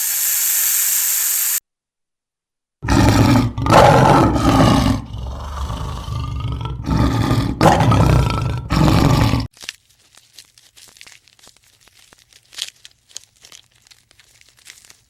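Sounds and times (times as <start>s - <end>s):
big cat roaring: 2.8s - 9.5s.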